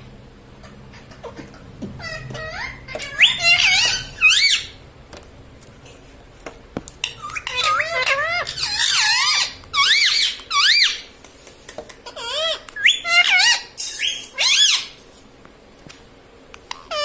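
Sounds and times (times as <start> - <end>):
parrot shrill squeaks: 2.0 - 4.8, 7.0 - 11.1, 12.0 - 15.0, 16.7 - 17.0.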